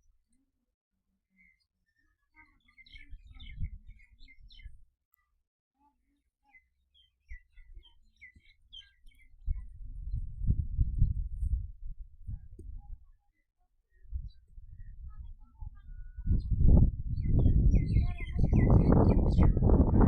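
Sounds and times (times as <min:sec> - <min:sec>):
small birds twittering: 0:01.4 - 0:04.8, 0:06.1 - 0:11.2, 0:13.9 - 0:19.8.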